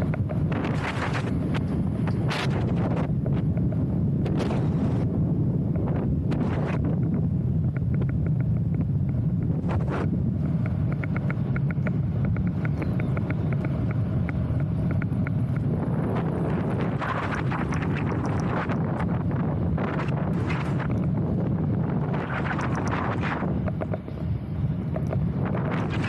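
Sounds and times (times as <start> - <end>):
wind buffeting microphone: 0.0 - 26.0
light even ticks: 7.6 - 19.1.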